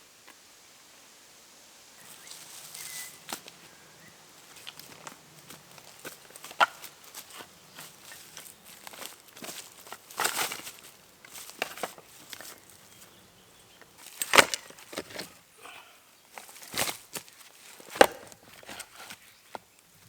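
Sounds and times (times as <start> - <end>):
wood cracking and snapping: 13.9 - 15.4, 16.4 - 19.1.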